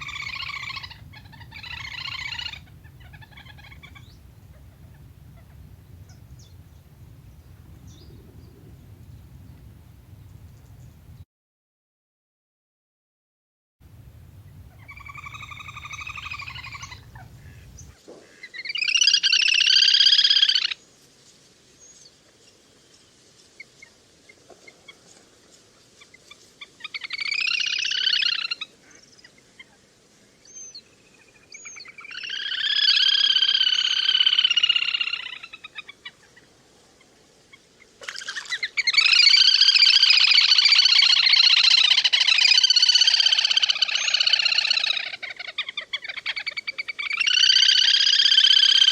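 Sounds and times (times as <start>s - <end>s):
grebe whinnying trills: 0.0s - 5.6s
low hum: 0.0s - 11.2s, 13.8s - 17.9s.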